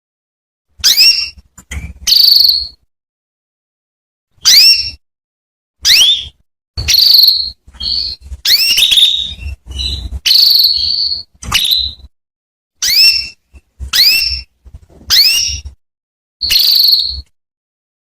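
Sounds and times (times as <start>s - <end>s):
canary chirping: 0.8s - 2.9s, 4.4s - 5.0s, 5.8s - 12.1s, 12.8s - 15.8s, 16.4s - 17.3s.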